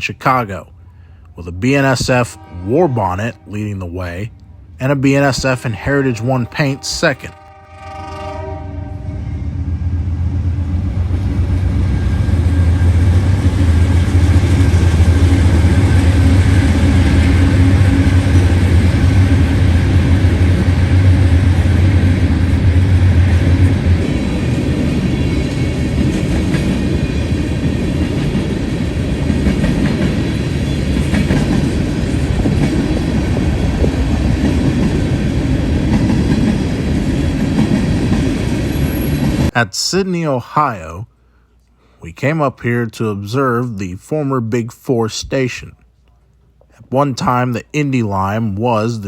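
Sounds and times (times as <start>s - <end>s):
diesel locomotive engines droning: 0.0s - 39.6s
train wheels on rails: 9.2s - 39.6s.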